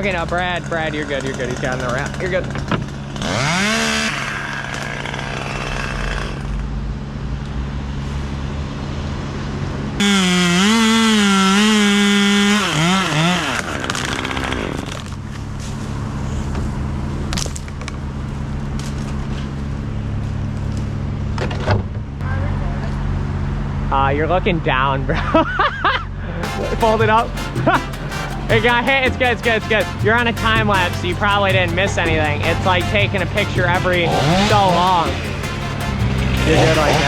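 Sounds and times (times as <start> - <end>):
chainsaw running and revving: 0.0 - 6.8, 10.0 - 15.3, 26.6 - 37.0.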